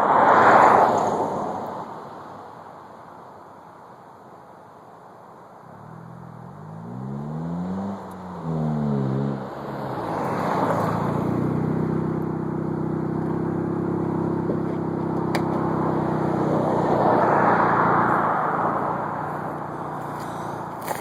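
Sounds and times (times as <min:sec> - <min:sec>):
car engine revving: 0:05.8 - 0:21.0.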